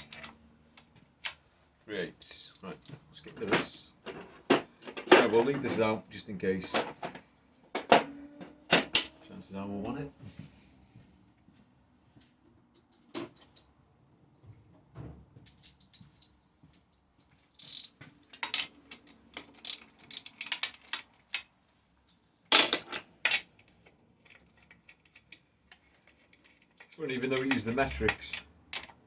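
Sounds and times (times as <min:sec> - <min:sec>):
metal hand tools clattering: 0:02.5 - 0:06.0.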